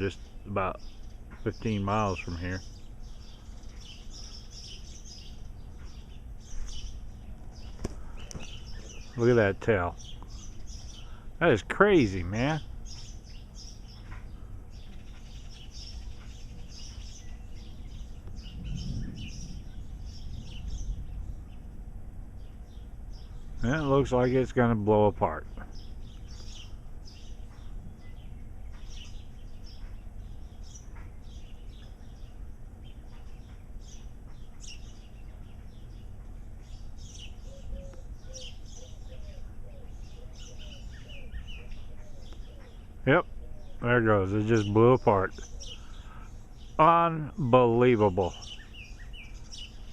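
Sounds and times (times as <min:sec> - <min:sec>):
small songbirds chirping: 0:00.0 - 0:49.9
steady low rumble: 0:00.0 - 0:49.9
wind rumble on microphone: 0:12.7 - 0:23.7, 0:25.5 - 0:38.8.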